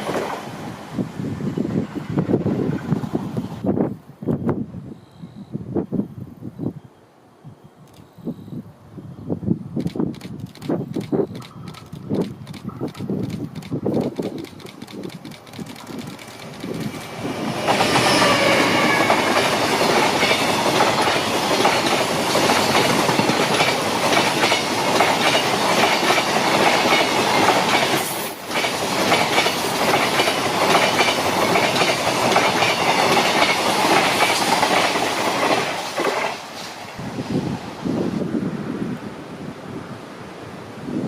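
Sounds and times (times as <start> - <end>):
train wheels clattering over rails: 10.2 - 36.9.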